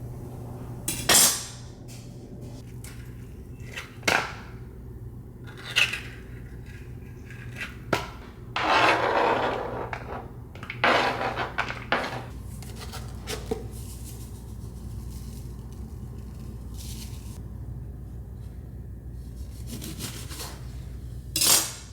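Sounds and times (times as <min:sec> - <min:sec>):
dishes clinking: 0:08.6 - 0:12.3.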